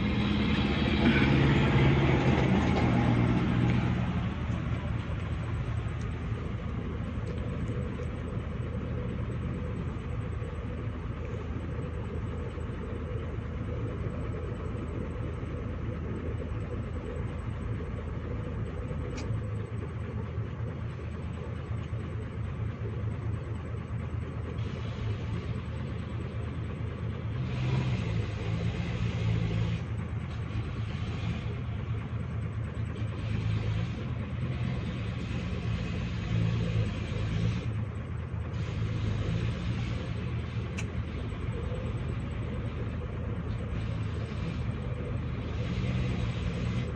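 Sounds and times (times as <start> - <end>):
diesel engine revving: 0.0 - 46.9.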